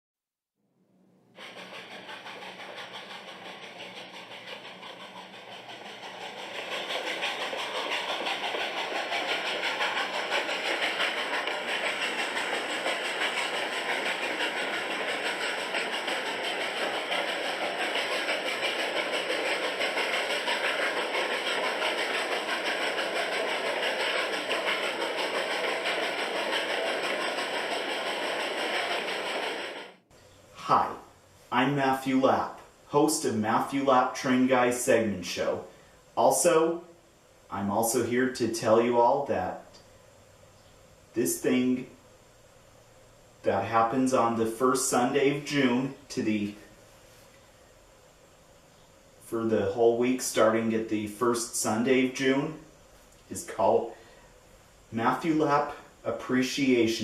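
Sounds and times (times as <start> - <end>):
train running on rails: 1.4 - 30.0.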